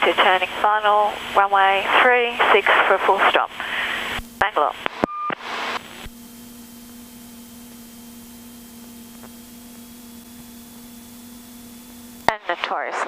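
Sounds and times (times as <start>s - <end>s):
aircraft cockpit hum and hiss: 0.0s - 13.0s.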